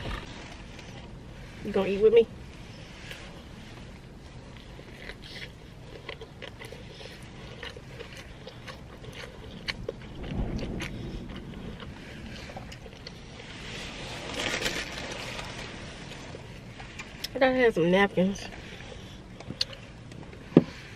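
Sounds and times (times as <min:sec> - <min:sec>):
low rumble: 0:00.0 - 0:17.3
person chewing: 0:02.5 - 0:15.3, 0:18.6 - 0:20.9.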